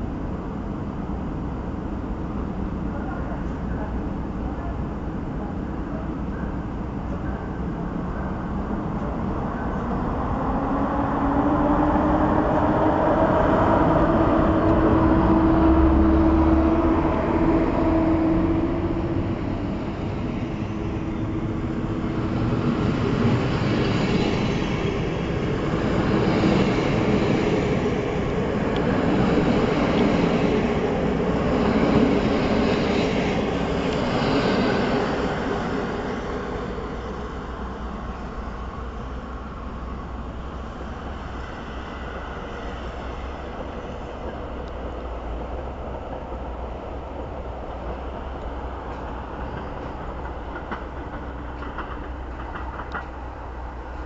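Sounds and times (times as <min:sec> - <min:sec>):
electric locomotive whine: 0:00.0 - 0:54.0
train wheels clattering over rail joints: 0:48.9 - 0:53.4.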